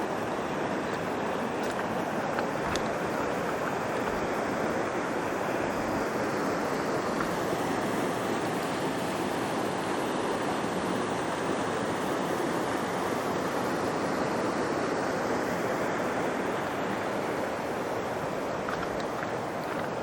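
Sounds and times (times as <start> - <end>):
mountain stream rushing over rocks: 0.0 - 20.0.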